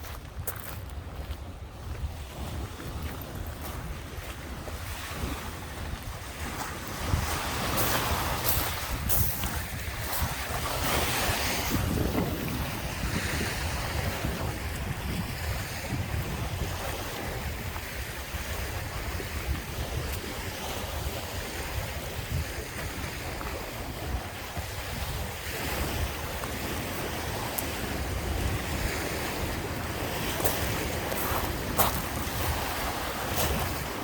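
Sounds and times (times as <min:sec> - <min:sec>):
waves washing onto beach: 0:00.0 - 0:34.0
wind rumbling on microphone: 0:00.0 - 0:34.0.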